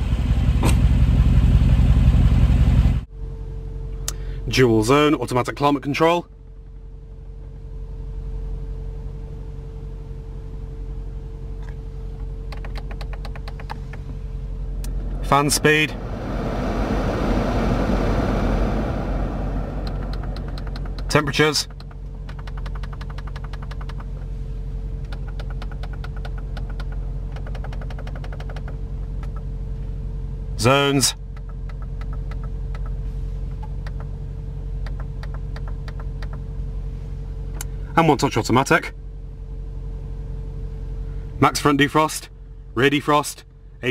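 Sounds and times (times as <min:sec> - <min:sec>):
car engine idling: 0:00.0 - 0:04.6, 0:05.5 - 0:42.8
constant hum: 0:00.0 - 0:43.9
dashboard switches clicking: 0:12.5 - 0:14.0, 0:21.7 - 0:24.2, 0:25.0 - 0:29.5, 0:34.8 - 0:36.4.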